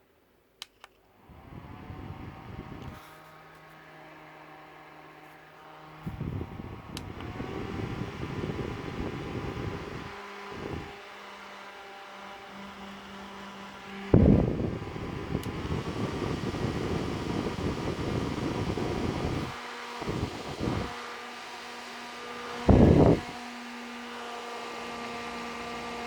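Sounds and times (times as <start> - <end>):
electric fan motor hum: 1.1 - 26.0
wind rumble on microphone: 1.3 - 3.0, 6.0 - 11.0, 14.1 - 20.9, 22.5 - 23.4.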